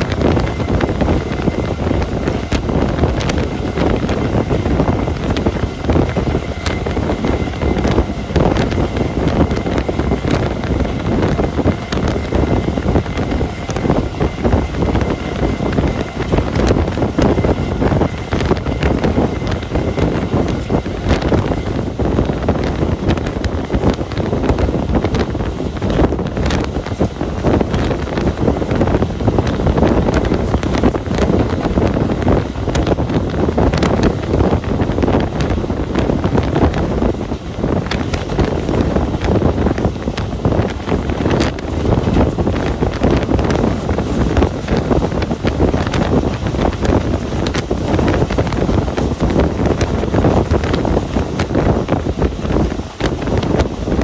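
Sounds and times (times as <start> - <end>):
train coaches rumbling: 0.0 - 54.0
wheels clicking on track: 0.0 - 54.0
wind buffeting microphone: 0.0 - 54.0.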